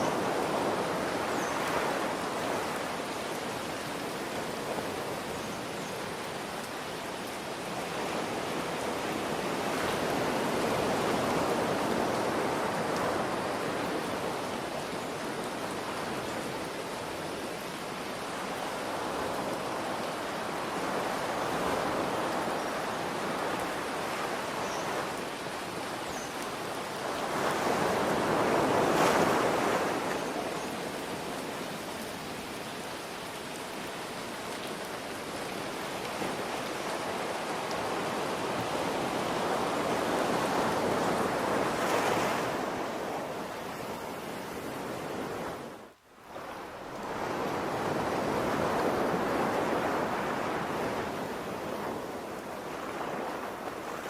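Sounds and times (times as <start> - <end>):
ocean surf washing in: 27.0 - 32.6, 35.2 - 54.0.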